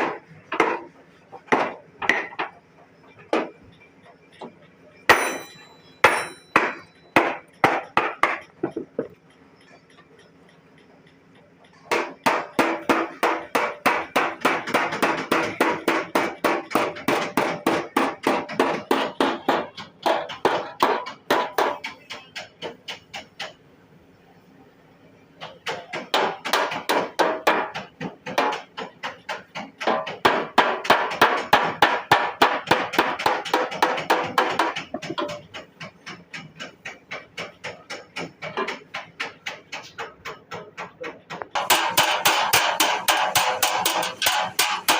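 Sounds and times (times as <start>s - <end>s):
hammer blows on sheet metal: 11.7s - 23.6s, 25.6s - 44.9s.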